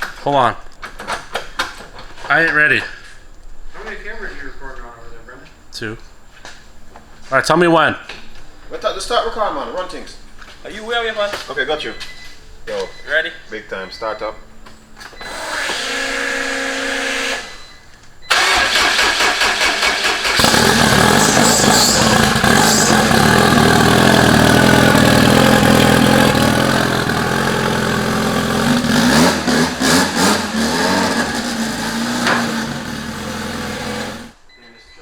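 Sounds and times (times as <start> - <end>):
starter cranking: 18.3 - 34.4
car engine running: 19.7 - 34.4
steady hum: 20.4 - 29.8.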